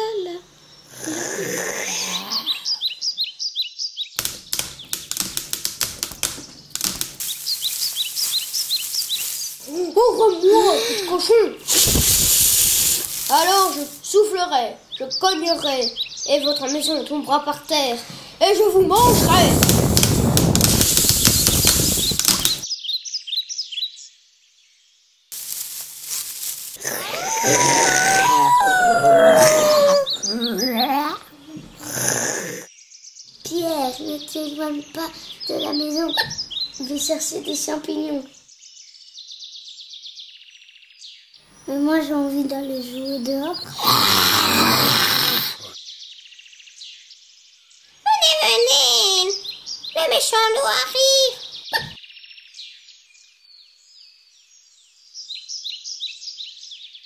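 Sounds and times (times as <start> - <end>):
sharp clicking taps: 4.2 - 7.3
high bird-like chirps: 6.4 - 10.8, 18.9 - 24.1, 32.8 - 44.3
loud rushing blow with cracking: 11.7 - 14.0, 18.8 - 22.6
wavering voice-like howl: 26.8 - 30.8.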